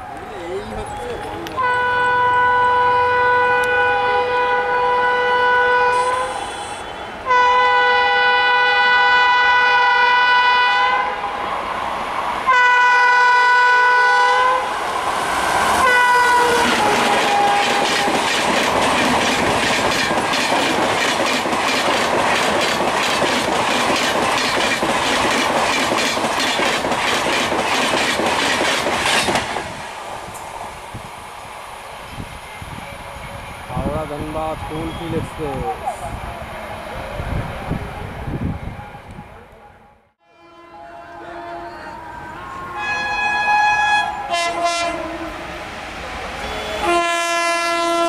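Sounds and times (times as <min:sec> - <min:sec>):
locomotive horn blasts: 0:01.6 - 0:11.2, 0:12.5 - 0:14.7, 0:15.8 - 0:18.1, 0:40.2 - 0:45.6, 0:46.4 - 0:48.0
wheels clacking over rail joints: 0:16.4 - 0:29.7.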